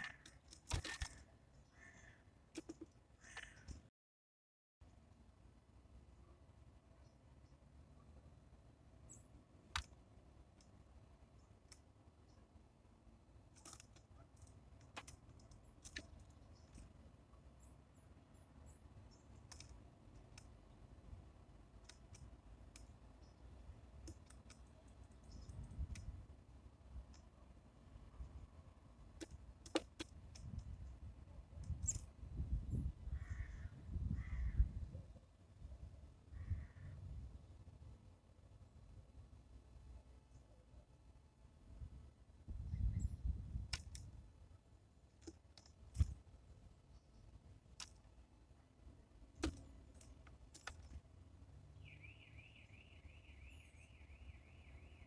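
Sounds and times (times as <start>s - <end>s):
crow cawing: 1.7s - 2.3s, 3.2s - 3.7s, 33.2s - 34.6s
sharp clicks: 9.1s - 10.8s, 19.1s - 20.7s, 21.8s - 23.4s, 24.0s - 26.2s, 29.2s - 30.8s, 43.7s - 44.2s, 47.7s - 48.2s, 49.3s - 51.0s.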